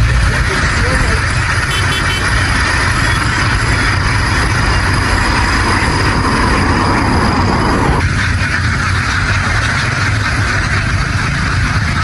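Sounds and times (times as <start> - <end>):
motor running: 0.0 - 8.0
flock of ducks calling: 0.0 - 12.0.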